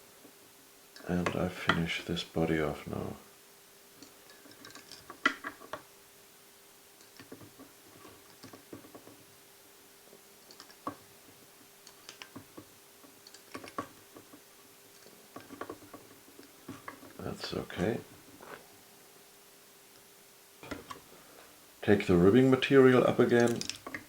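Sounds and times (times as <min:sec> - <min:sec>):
faint steady hum: 0:00.0 - 0:24.0
small tools clicking: 0:10.5 - 0:10.9, 0:23.4 - 0:24.0.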